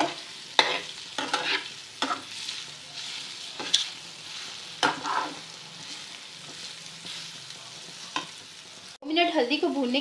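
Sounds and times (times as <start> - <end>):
spoon scraping a pan: 0.0 - 8.4
chillies frying in a pan: 0.0 - 10.0.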